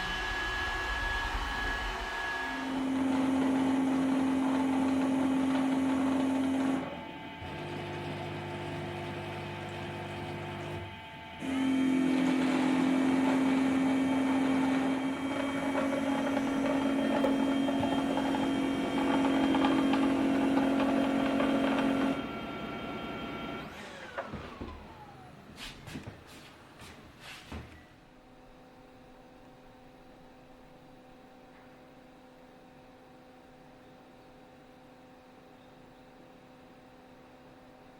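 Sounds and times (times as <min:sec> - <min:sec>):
robot vacuum motor hum: 0:00.0 - 0:25.4.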